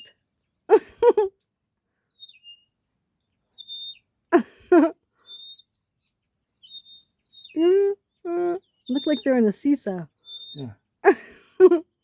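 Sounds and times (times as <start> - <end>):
short human vocal sound: 10.6 - 10.8.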